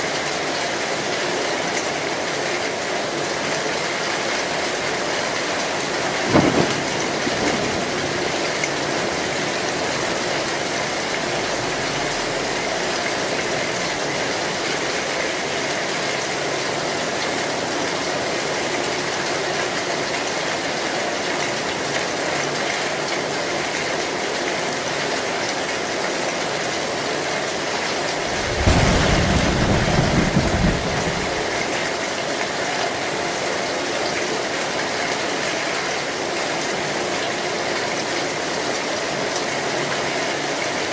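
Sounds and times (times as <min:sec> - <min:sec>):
heavy rain on a tin roof: 0:00.0 - 0:40.9
thunder rumbling: 0:05.4 - 0:14.6, 0:28.1 - 0:31.8.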